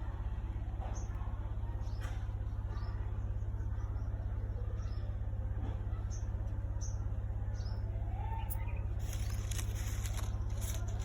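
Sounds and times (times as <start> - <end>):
steady low hum: 0.0 - 11.0
small bird chirping: 7.6 - 11.0
light crackling rustles: 9.0 - 11.0.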